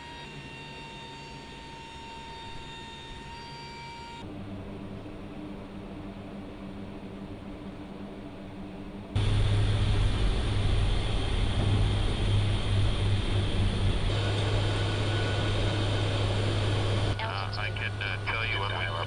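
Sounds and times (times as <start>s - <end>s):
aircraft engine drone: 4.2s - 19.0s.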